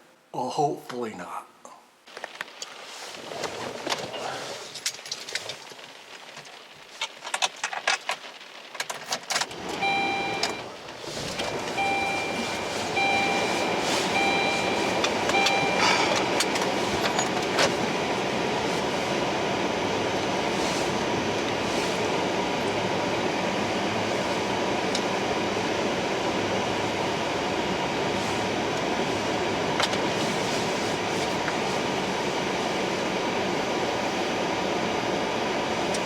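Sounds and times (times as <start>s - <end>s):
car engine starting and running: 7.4s - 36.0s
car warning chime: 9.8s - 10.7s, 11.6s - 17.4s.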